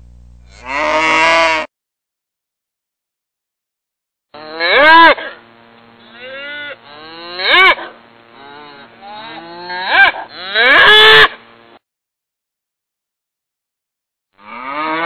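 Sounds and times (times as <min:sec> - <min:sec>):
cow mooing: 0:00.5 - 0:01.7, 0:06.0 - 0:11.1, 0:14.4 - 0:15.0.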